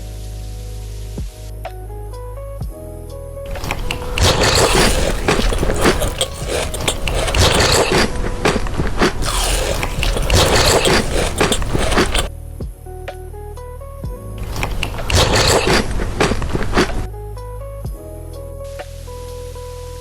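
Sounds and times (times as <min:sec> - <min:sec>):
chewing chocolate crunchily: 0:03.5 - 0:12.3, 0:14.4 - 0:17.0.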